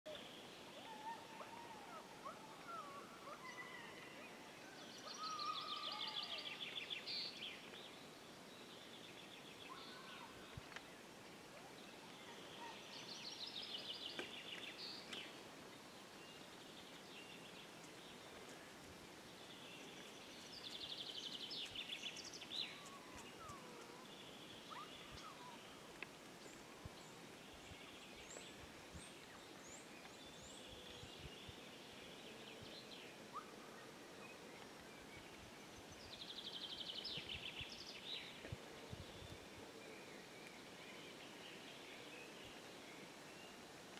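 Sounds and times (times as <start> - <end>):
quiet outdoor hiss: 0.1 - 43.9
faint bird chirps: 19.4 - 25.9.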